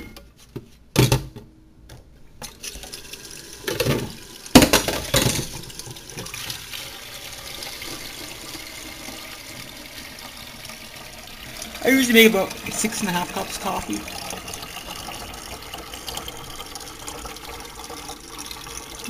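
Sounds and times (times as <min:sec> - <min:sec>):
water running from a tap: 0:02.6 - 0:19.0
water splashes and knocks: 0:03.6 - 0:06.6.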